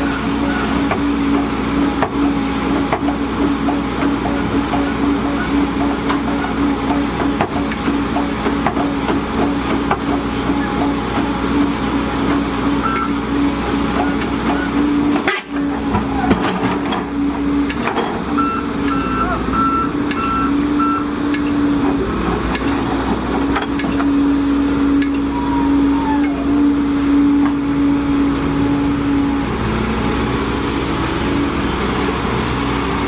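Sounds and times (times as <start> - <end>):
excavator diesel engine running: 0.0 - 33.0
high alarm beeps: 18.4 - 21.1.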